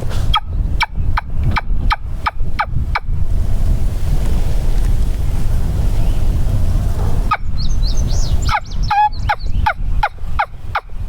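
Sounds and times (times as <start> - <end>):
low rumble: 0.0 - 10.3
turkey calling: 7.2 - 10.9.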